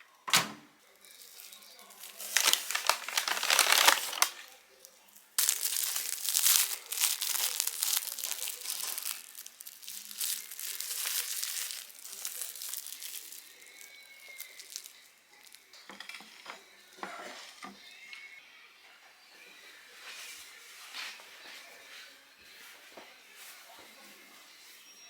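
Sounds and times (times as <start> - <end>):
packaging crinkling: 1.0 - 15.6.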